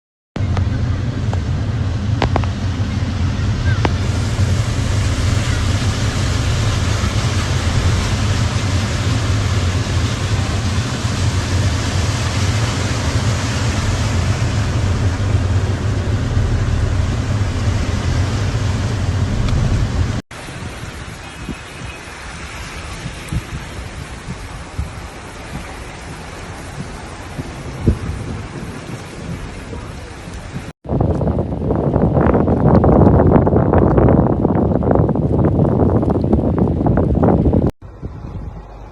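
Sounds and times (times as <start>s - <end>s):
engine and road noise: 0.4s - 38.9s
heavy rain on a car: 2.2s - 30.7s.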